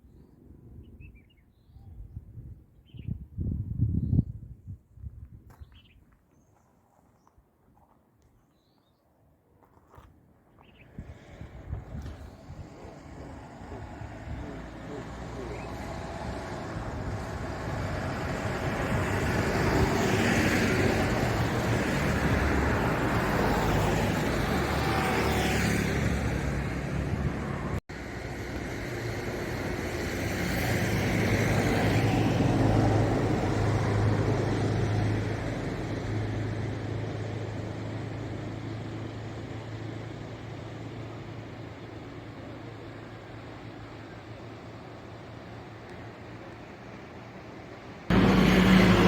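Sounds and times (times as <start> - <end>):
road vehicle rushing: 10.8 - 49.0.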